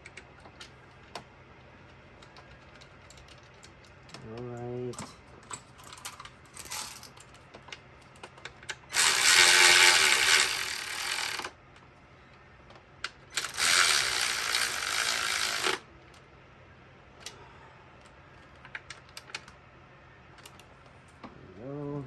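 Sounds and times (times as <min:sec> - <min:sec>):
ratchet wrench clicking: 0:08.9 - 0:11.5, 0:13.4 - 0:15.8.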